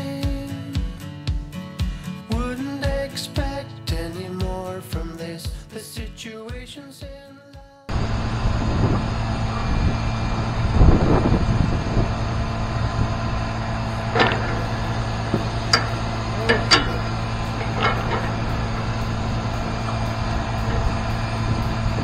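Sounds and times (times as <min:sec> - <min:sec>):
truck engine idling: 0:07.9 - 0:22.0
sharp knocks and clanks: 0:13.6 - 0:22.0.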